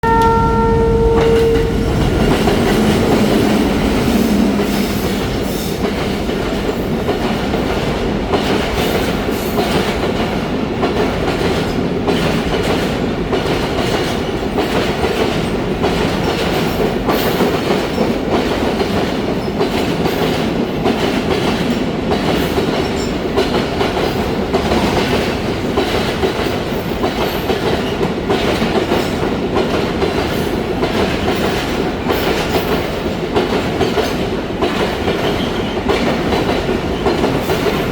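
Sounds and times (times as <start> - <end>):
train horn: 0.0 - 5.8
train wheels clattering: 0.0 - 37.9.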